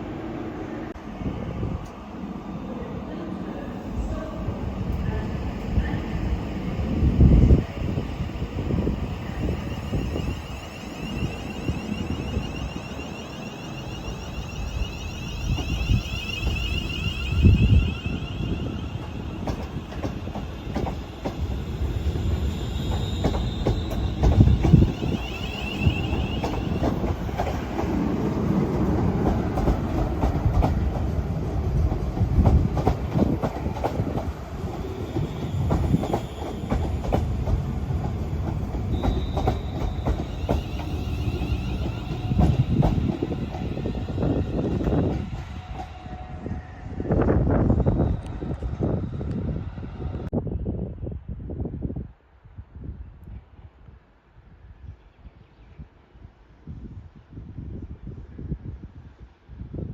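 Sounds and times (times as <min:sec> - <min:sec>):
train rumbling: 0:00.0 - 0:51.1
high whine: 0:09.2 - 0:19.5.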